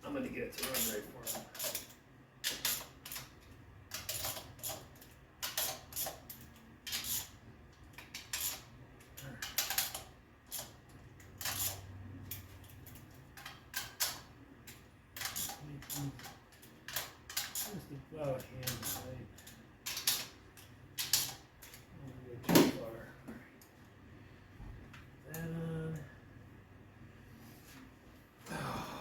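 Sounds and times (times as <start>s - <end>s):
metal tools clicking and clinking: 0.5s - 7.3s, 7.9s - 21.9s.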